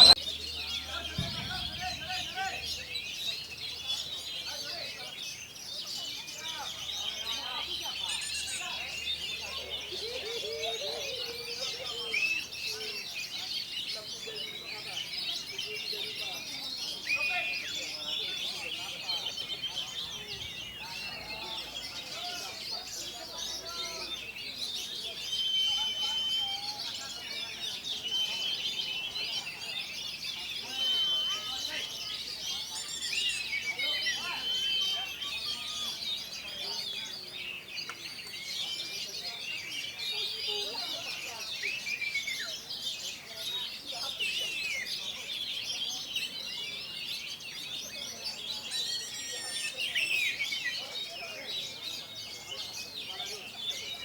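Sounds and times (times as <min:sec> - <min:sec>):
bird chirps and warbles: 0:00.0 - 0:54.0
long whistled bird note: 0:01.2 - 0:03.0.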